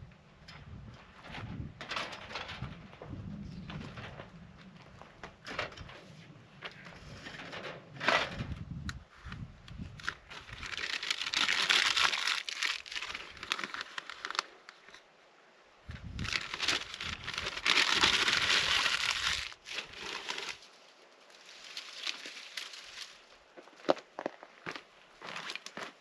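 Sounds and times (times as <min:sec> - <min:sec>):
low rumble: 0:02.4 - 0:07.3
packaging crinkling and rustling: 0:10.0 - 0:15.0, 0:16.2 - 0:20.7, 0:21.4 - 0:23.3.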